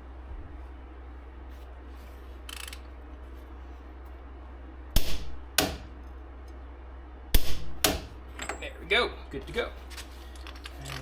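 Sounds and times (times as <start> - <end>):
torque wrench clicking: 2.5 - 2.8.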